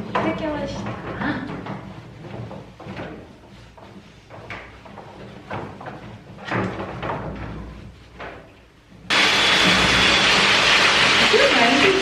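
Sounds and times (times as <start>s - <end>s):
knocks and rattles of handling: 0.0s - 9.1s.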